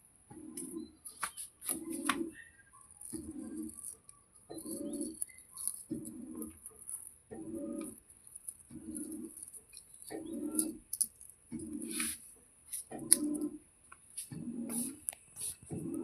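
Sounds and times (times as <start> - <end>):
dove cooing: 0.3 - 1.0, 1.6 - 3.9, 4.5 - 6.6, 7.3 - 8.0, 8.7 - 9.4, 10.1 - 12.2, 12.9 - 13.6, 14.3 - 15.1, 15.7 - 16.0.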